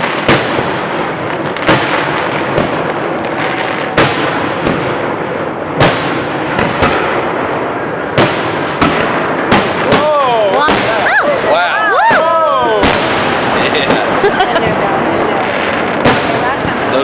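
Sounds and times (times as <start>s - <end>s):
soft fireworks pops: 0.0s - 11.5s, 12.8s - 17.0s
fireworks booming: 0.0s - 17.0s.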